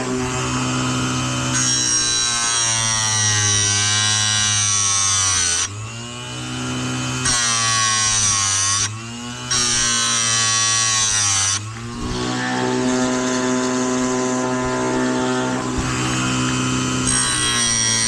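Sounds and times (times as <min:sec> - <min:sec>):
motor humming: 0:00.0 - 0:02.0, 0:11.7 - 0:18.0
grinding wheel on chain: 0:11.8 - 0:18.0.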